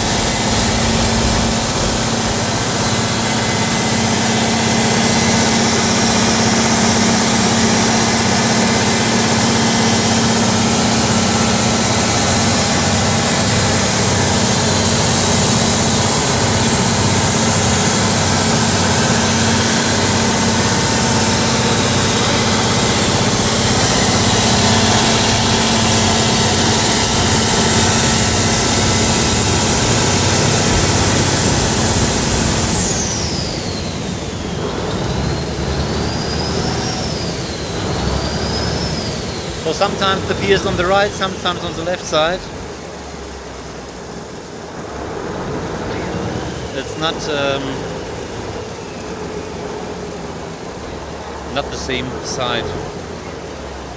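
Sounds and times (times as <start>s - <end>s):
boat diesel engine running: 0.0s - 53.9s
high whine: 0.0s - 53.9s.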